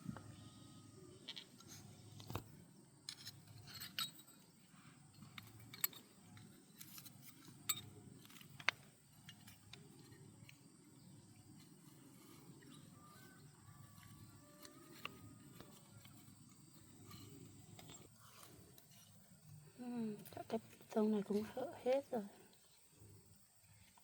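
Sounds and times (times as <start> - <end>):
faint low hum: 0.0 - 24.0
metallic clicks of tools handled: 3.1 - 4.5, 5.2 - 10.6.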